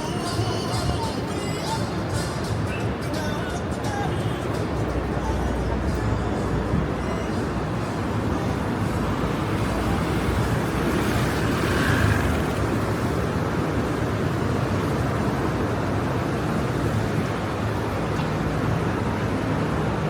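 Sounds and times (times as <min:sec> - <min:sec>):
city street traffic: 0:00.0 - 0:20.0
car passing close: 0:05.7 - 0:20.0.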